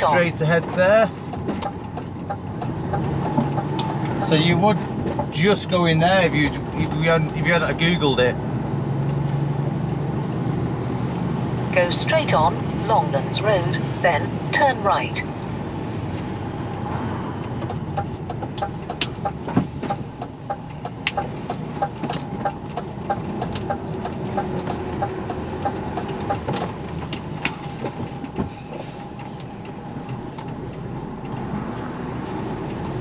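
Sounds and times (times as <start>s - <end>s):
turn indicator ticking: 0.0s - 8.2s, 16.6s - 33.0s
diesel engine and road noise: 0.0s - 33.0s
cab rattles and clicks: 17.5s - 33.0s.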